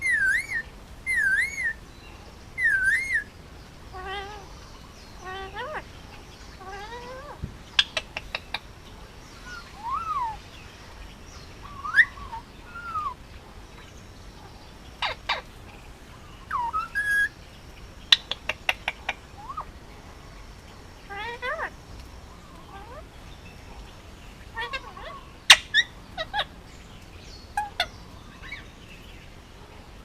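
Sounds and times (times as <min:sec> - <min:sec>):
parakeet chattering calls: 0:00.0 - 0:01.8, 0:02.6 - 0:03.3, 0:03.9 - 0:05.9, 0:06.6 - 0:08.7, 0:15.0 - 0:15.5, 0:16.4 - 0:17.4, 0:18.1 - 0:19.7, 0:21.0 - 0:21.8, 0:22.5 - 0:23.0, 0:24.5 - 0:26.6, 0:27.6 - 0:28.7.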